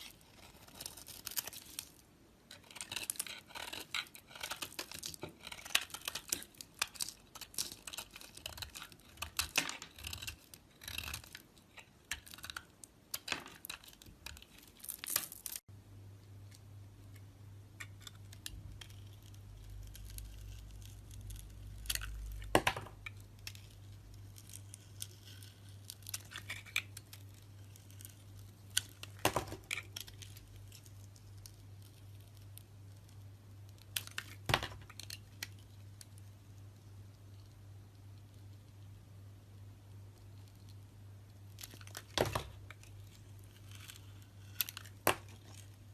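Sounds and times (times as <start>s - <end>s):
knife scraping soap: 0.0s - 1.9s, 2.5s - 14.6s, 17.8s - 22.5s, 23.1s - 29.0s, 42.8s - 45.7s
low steady hum: 0.0s - 45.9s.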